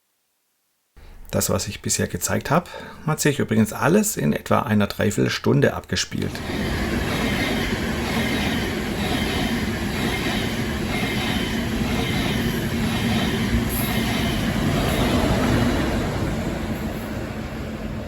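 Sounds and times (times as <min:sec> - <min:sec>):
train running on rails: 0:06.1 - 0:18.0.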